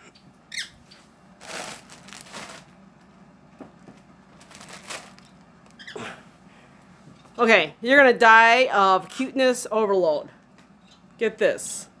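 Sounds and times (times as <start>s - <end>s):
packaging crinkling and rustling: 1.4s - 2.8s, 3.8s - 5.8s.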